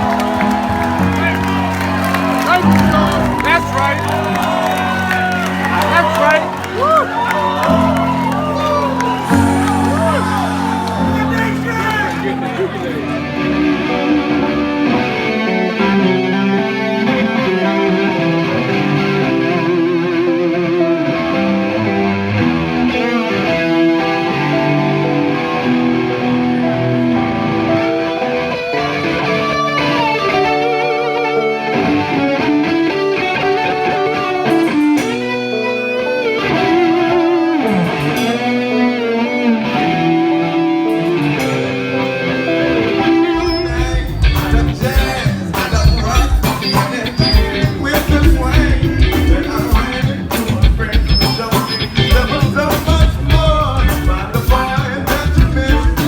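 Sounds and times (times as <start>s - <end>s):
band backing: 0.0s - 23.0s, 28.8s - 56.0s
drums and bass: 43.4s - 56.0s.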